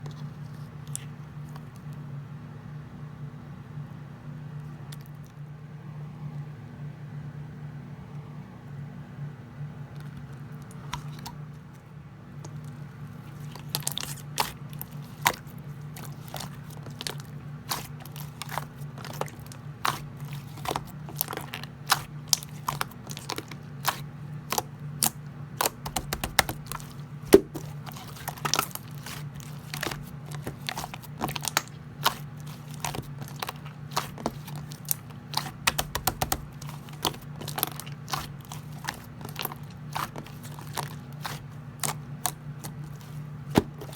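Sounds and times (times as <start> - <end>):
slime squishing with clicking pops: 13.6 - 43.9.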